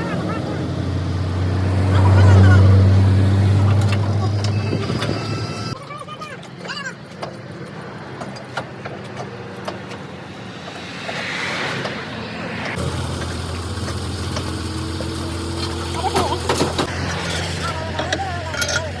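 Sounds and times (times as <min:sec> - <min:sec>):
deeper louder hum: 0:09.6 - 0:16.0
motor humming: 0:12.6 - 0:16.9.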